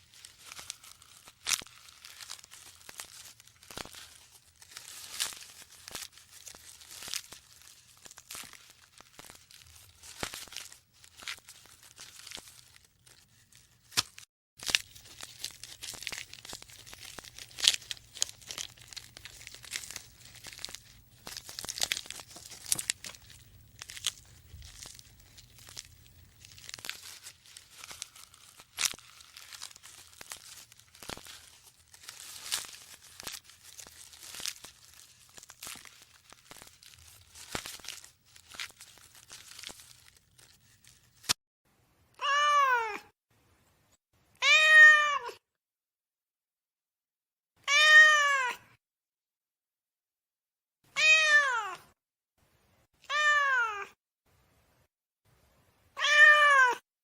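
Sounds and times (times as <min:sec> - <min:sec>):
crinkling and rustling: 0:00.0 - 0:41.4
cat meowing: 0:42.2 - 0:43.1, 0:44.4 - 0:45.4, 0:47.6 - 0:48.6, 0:50.9 - 0:51.8, 0:53.0 - 0:54.0, 0:56.0 - 0:56.8.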